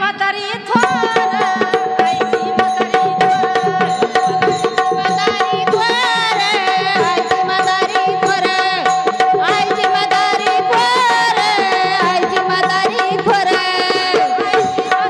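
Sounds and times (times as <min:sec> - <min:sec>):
held drone note: 0:00.7 - 0:04.1
wavering melody line: 0:00.7 - 0:05.8
tabla strokes: 0:00.7 - 0:15.0.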